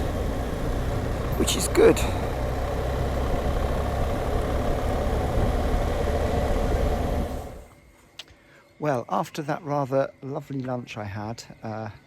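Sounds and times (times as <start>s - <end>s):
motorcycle engine running: 0.0s - 7.7s
road and wind noise: 0.0s - 7.8s.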